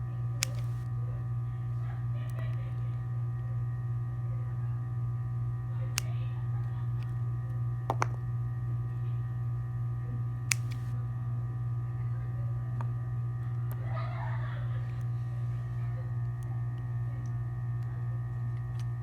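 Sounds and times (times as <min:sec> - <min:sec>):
low electrical hum: 0:00.0 - 0:19.0
sharp brief clicks: 0:10.5 - 0:10.9.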